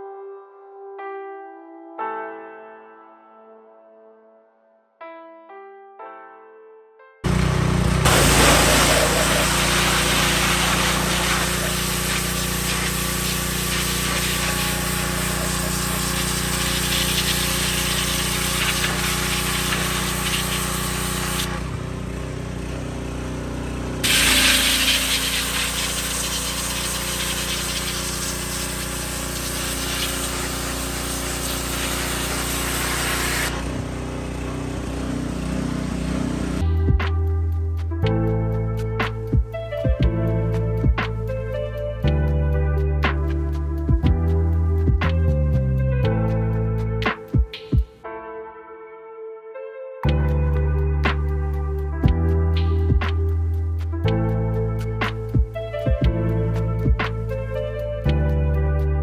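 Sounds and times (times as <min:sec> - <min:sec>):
pressure washer water jet hissing: 0:07.3 - 0:36.6
washer motor humming: 0:07.3 - 0:36.6.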